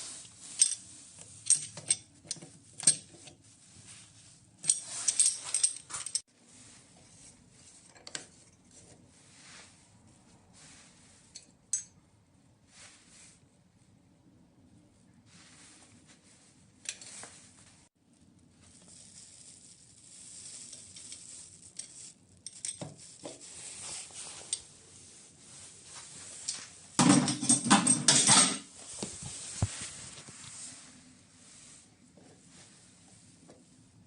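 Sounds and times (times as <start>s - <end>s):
metal parts clinking and scraping: 0.2s - 3.4s, 4.6s - 6.2s, 20.6s - 23.2s, 26.4s - 28.7s.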